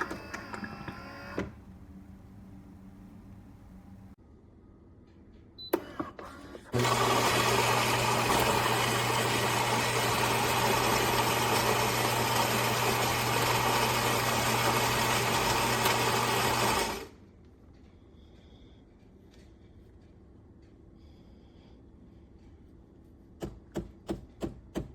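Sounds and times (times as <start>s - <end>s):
coffee machine whirring buzz: 0.0s - 1.7s, 6.0s - 17.1s.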